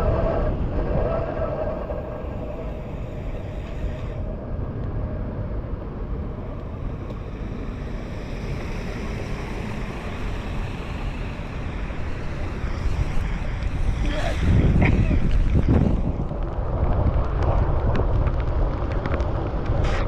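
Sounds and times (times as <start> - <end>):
wind rumbling on microphone: 0.0 - 20.0
traffic on wet road: 6.2 - 20.0.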